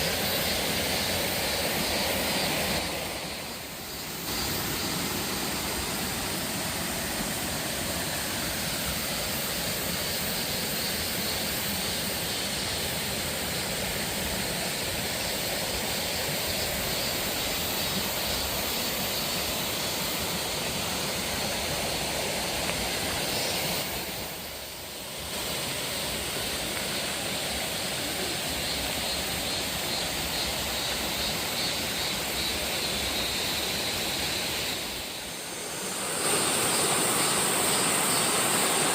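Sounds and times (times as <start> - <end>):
waterfall rushing: 32.2 - 38.9.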